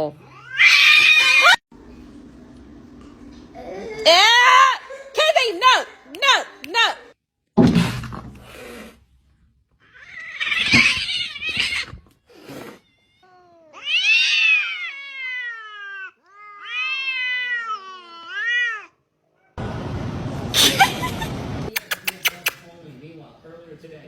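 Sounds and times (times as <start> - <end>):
cat yowling: 0.2 - 1.6, 9.8 - 12.0, 12.7 - 19.6
sudden thump: 7.6 - 8.5.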